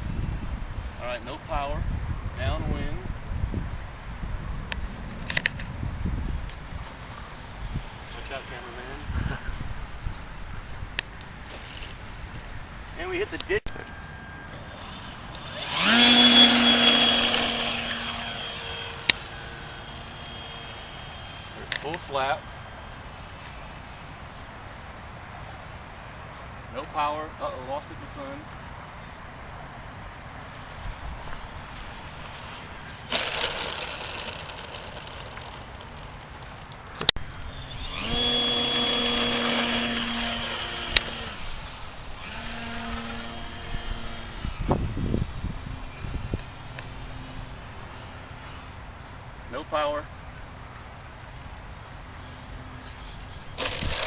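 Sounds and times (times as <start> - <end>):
model plane motor whining: 13.8 - 23.6, 33.1 - 35.9, 37.3 - 48.8, 52.3 - 54.0.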